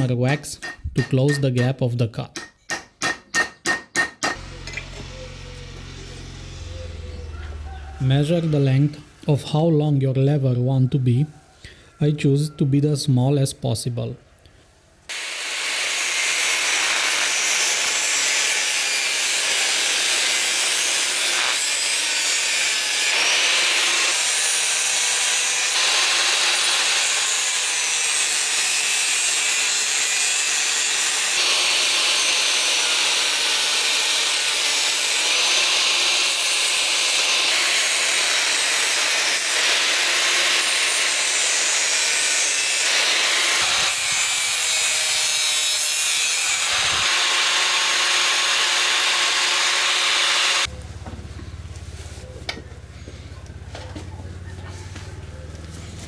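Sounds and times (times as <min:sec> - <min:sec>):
angle grinder cutting steel: 0:04.2 - 0:09.3, 0:15.1 - 0:50.7.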